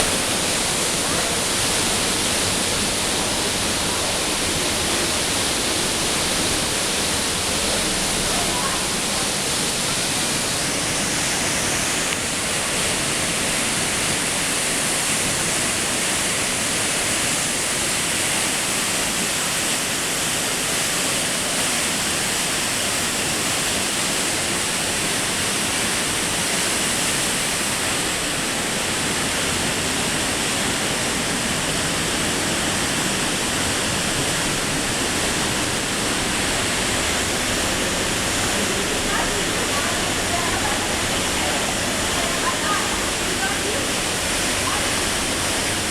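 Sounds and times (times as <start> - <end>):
waterfall rushing: 0.0 - 45.9.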